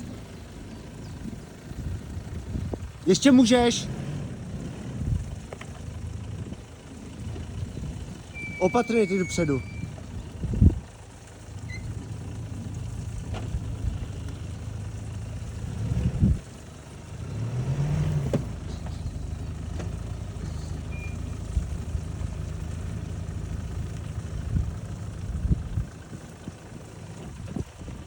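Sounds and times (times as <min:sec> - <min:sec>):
car engine running at low revs: 0:00.0 - 0:28.0.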